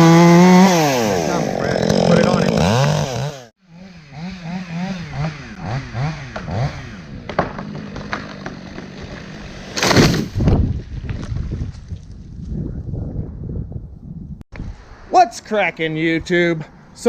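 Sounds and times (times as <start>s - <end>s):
chainsaw revving: 0.0s - 9.9s
sharp cracks: 7.3s - 11.3s
loud crash: 9.5s - 10.8s.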